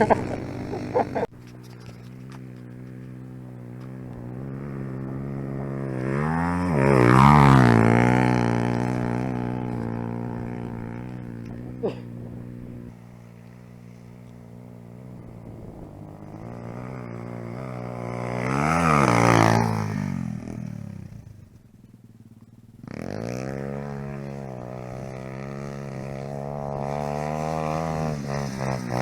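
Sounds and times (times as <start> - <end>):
dirt bike engine running: 0.0 - 29.0
dirt bike riding past: 0.0 - 29.0.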